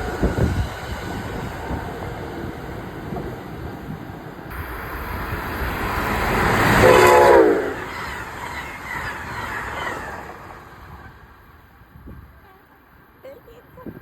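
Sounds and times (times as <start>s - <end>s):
train passing rumble: 0.0s - 14.0s
train horn blast: 6.6s - 8.2s.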